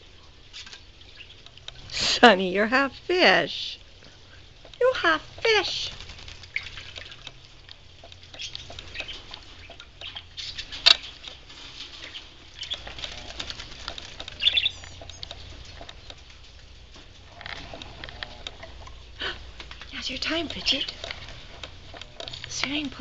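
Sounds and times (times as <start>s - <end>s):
high bird chirps: 14.4s - 15.3s.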